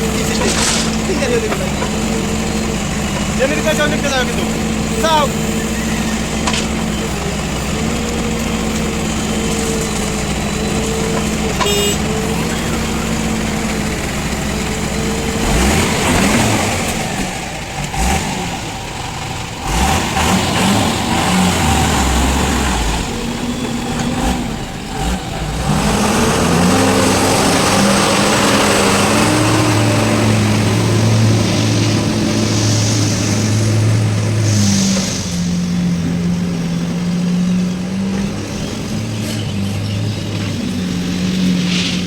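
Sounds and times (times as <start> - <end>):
rough clattering with sharp knocks: 0.0 - 15.2
diesel engine revving: 0.0 - 42.0.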